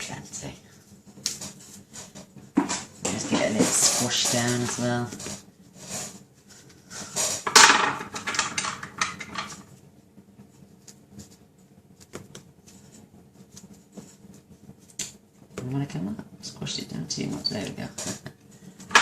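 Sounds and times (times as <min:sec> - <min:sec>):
paper rustling and scraping: 0:01.3 - 0:07.5, 0:12.0 - 0:15.0.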